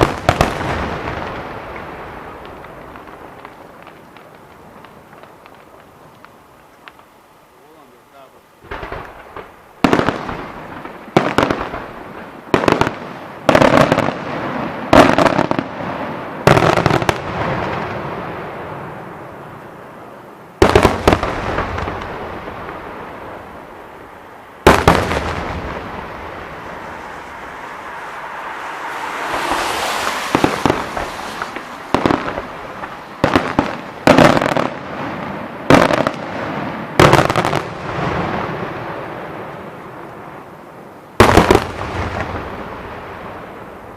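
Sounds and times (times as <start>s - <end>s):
firework hissing: 20.8s - 35.6s
firework shells bursting: 24.6s - 35.0s.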